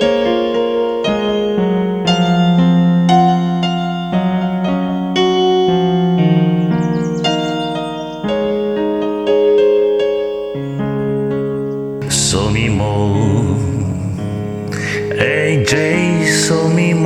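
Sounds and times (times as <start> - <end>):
electric piano chords: 0.0 - 17.0
faint bird chirps: 1.1 - 12.3.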